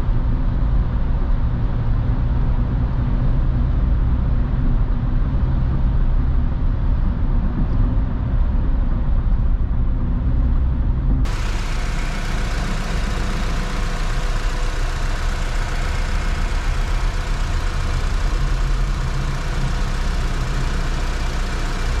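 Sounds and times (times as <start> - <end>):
car engine idling: 11.3 - 22.0.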